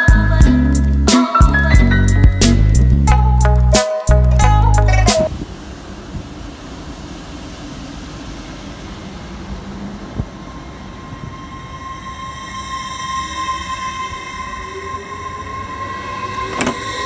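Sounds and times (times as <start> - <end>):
train rumbling: 5.2 - 17.0
train motor whine: 7.0 - 17.0.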